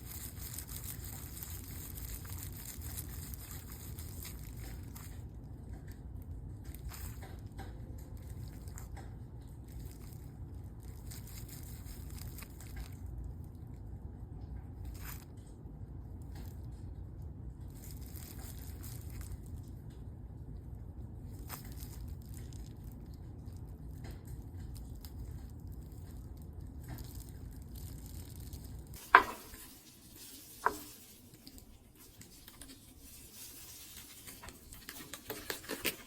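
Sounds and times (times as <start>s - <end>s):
steady low hum: 0.0s - 36.0s
utensils tapping against bowl: 29.0s - 29.8s.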